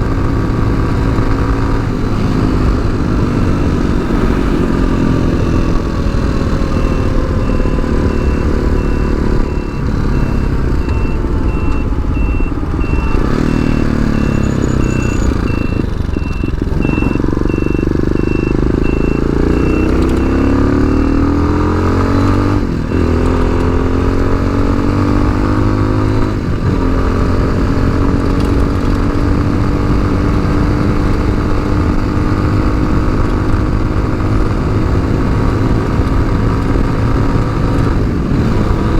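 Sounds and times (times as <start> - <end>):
motorcycle engine revving: 0.0 - 38.9
high beeps: 0.2 - 26.3.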